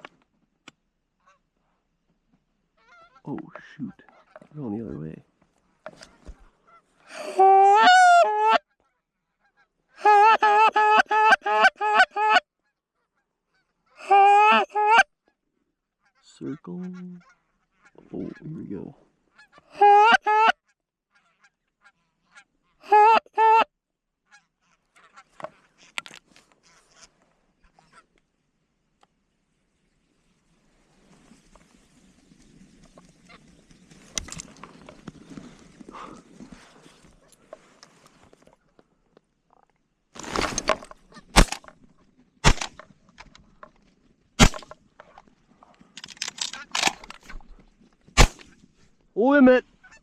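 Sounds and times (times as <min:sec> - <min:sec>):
distant goose calls: 0:02.7 - 0:04.6, 0:06.0 - 0:07.1, 0:07.7 - 0:10.0, 0:16.0 - 0:18.6, 0:19.2 - 0:23.6, 0:24.2 - 0:26.0, 0:26.6 - 0:28.2, 0:49.6 - 0:50.0
geese honking: 0:07.7 - 0:12.4, 0:24.3 - 0:26.0
shotgun blasts: 0:41.3 - 0:41.7, 0:42.4 - 0:42.8, 0:44.4 - 0:44.8, 0:48.2 - 0:48.6.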